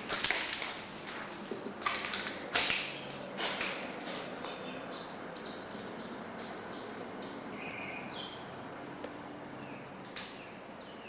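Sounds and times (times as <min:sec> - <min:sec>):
small birds chirping: 0:04.3 - 0:11.0.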